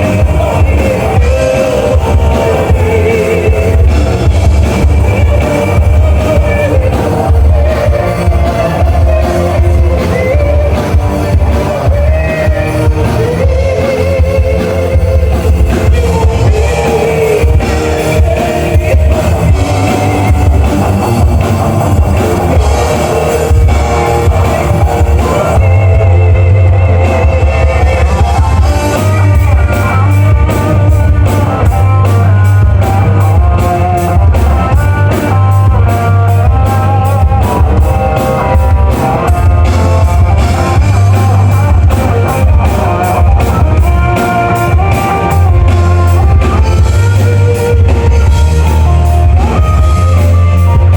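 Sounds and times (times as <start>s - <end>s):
person singing: 0.0s - 50.9s
rock music: 0.0s - 50.9s.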